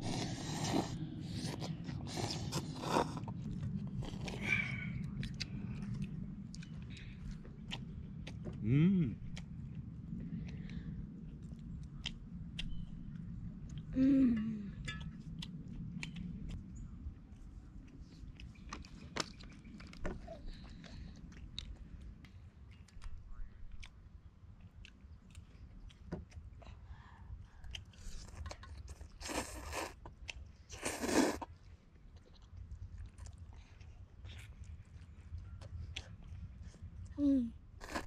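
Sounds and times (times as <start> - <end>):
person chewing: 0.0 - 13.9, 14.8 - 16.6, 27.6 - 37.1, 37.8 - 38.0.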